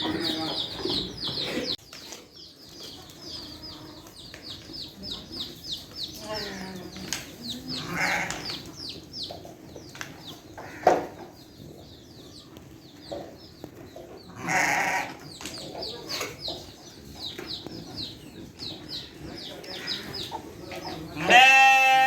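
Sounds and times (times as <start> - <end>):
chicks chirping: 0.0 - 14.6, 15.2 - 21.2
goats bleating: 14.4 - 15.2, 21.2 - 22.0.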